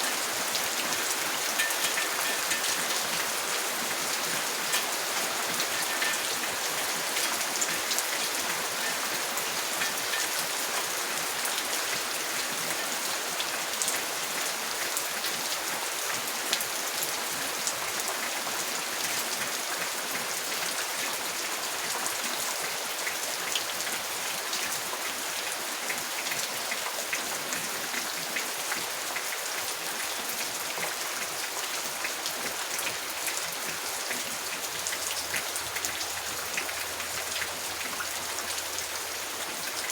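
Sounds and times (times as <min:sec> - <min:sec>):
raindrop ticks: 0:00.0 - 0:10.9
steady rain hiss: 0:00.0 - 0:39.9.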